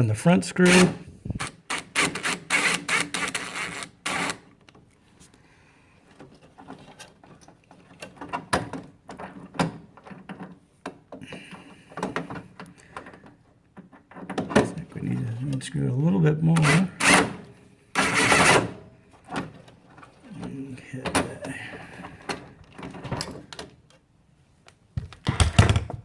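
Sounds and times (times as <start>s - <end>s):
driver bit clicking on screw: 0.7s - 4.4s.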